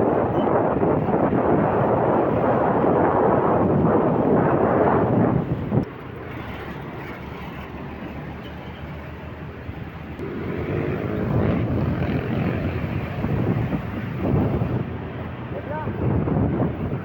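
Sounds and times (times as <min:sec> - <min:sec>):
rushing vehicle noise: 0:00.0 - 0:17.0
wind buffeting microphone: 0:00.0 - 0:17.0.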